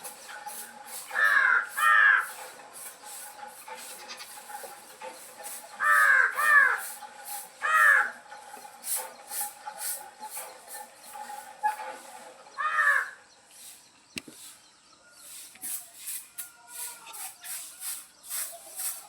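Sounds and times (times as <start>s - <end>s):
small birds chirping: 0.0s - 19.0s
crows cawing: 1.1s - 2.6s, 5.8s - 7.0s, 7.6s - 8.2s, 12.5s - 13.2s.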